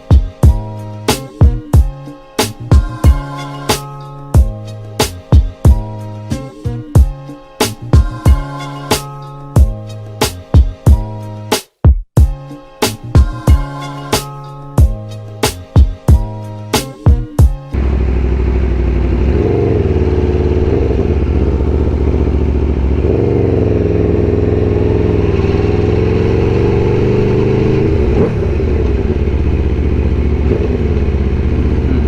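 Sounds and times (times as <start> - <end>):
motorcycle engine revving: 17.8 - 32.0.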